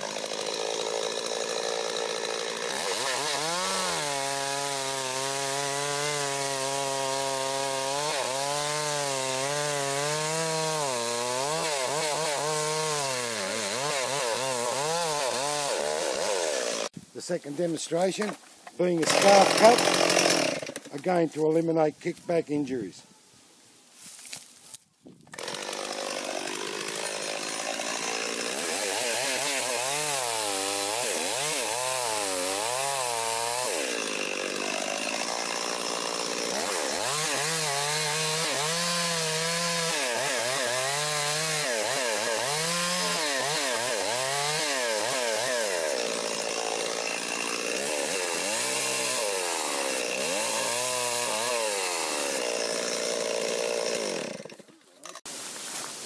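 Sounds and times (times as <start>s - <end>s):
chainsaw cutting wood: 0.0s - 17.0s, 18.0s - 21.2s, 25.3s - 55.3s.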